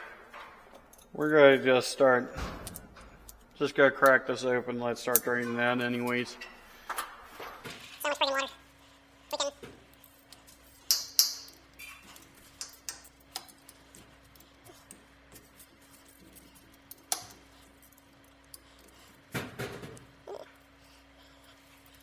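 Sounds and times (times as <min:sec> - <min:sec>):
metallic clinks and knocks: 0:00.0 - 0:01.7, 0:02.3 - 0:04.2, 0:09.3 - 0:20.6.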